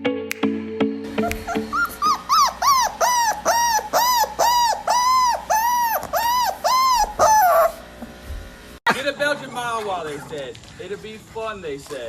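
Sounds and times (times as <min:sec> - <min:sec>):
dog yelping: 0:01.1 - 0:07.9.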